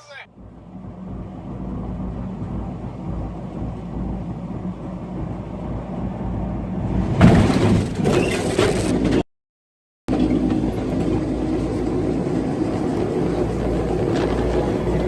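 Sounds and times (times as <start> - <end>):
collision crash clattering: 7.1 - 9.2
vehicle driving rumble: 10.1 - 15.0.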